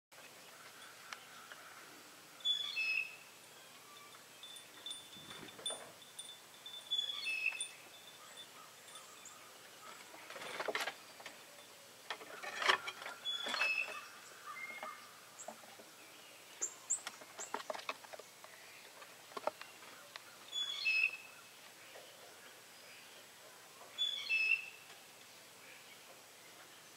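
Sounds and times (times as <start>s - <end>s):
thin very high chirps: 2.4s - 9.4s, 20.5s - 21.3s
soft rustles and taps: 17.0s - 20.0s.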